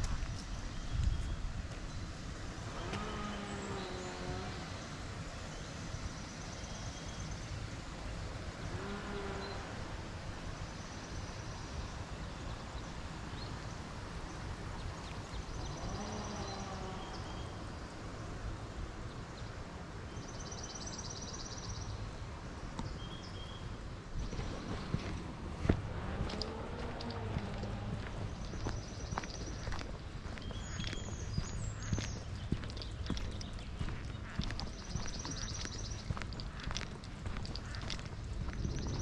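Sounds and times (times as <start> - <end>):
small birds trilling: 14.8 - 17.9, 24.2 - 39.0.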